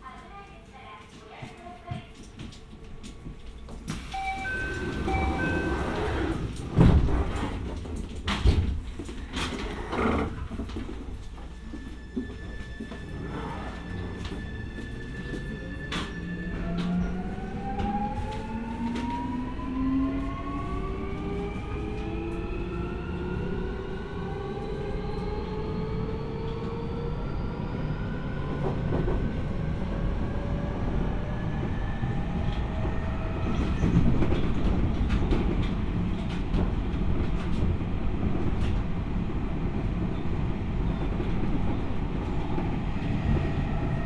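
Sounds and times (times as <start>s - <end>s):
train wheels rumbling on rails: 0.0s - 44.0s
train motor whine rising: 3.9s - 6.8s.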